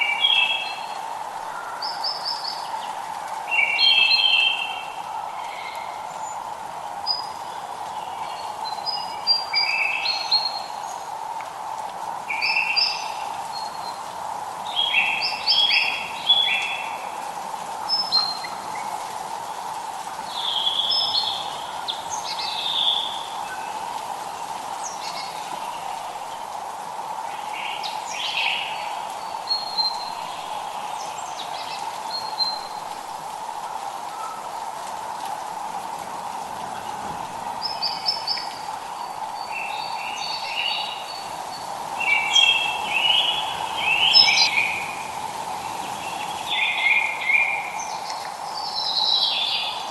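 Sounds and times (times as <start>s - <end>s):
light rain hissing: 0.0s - 49.9s
songbirds chirping: 0.0s - 49.9s.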